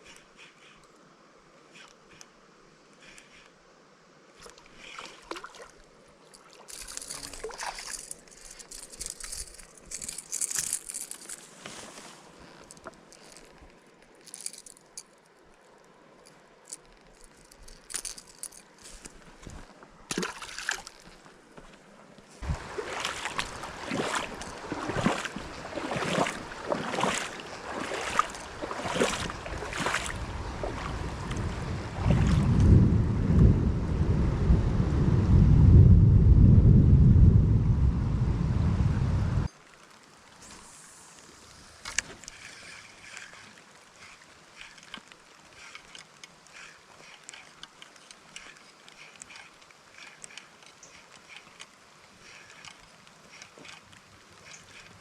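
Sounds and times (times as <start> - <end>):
water splashing in stream: 4.4 - 13.6, 20.0 - 21.4, 22.4 - 32.7
thunder rumbling: 32.5 - 39.5.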